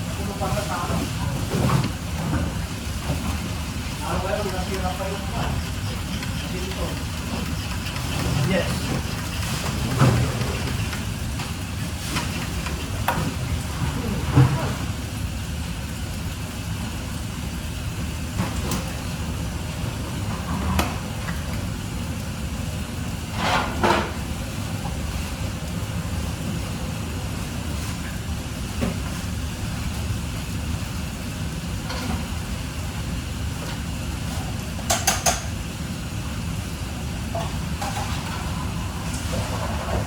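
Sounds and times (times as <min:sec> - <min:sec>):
utensils and dishes clattering: 0:04.0 - 0:11.2, 0:34.8 - 0:35.6, 0:37.3 - 0:40.0.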